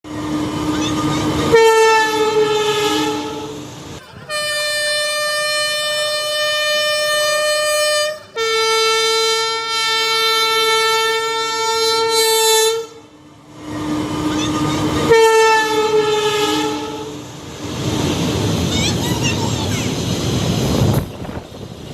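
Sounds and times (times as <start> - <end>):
train horn blasts: 1.5 - 3.6, 4.2 - 13.0, 15.0 - 17.2.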